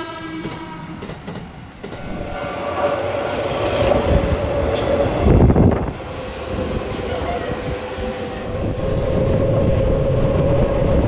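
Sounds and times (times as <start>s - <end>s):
train running on rails: 0.0s - 11.0s
steady whine: 7.9s - 11.0s.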